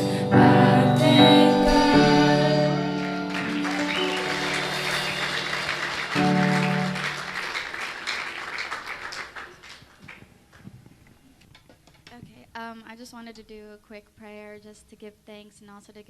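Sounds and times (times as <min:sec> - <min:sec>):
held instrumental chord: 0:00.0 - 0:07.5
final chord ringing out: 0:01.0 - 0:07.4
audience applauding: 0:01.6 - 0:10.8.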